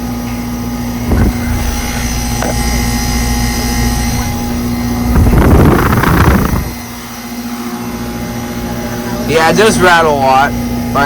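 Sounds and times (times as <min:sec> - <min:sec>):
air conditioner humming: 0:00.0 - 0:11.0
loud rough noise: 0:01.0 - 0:08.2.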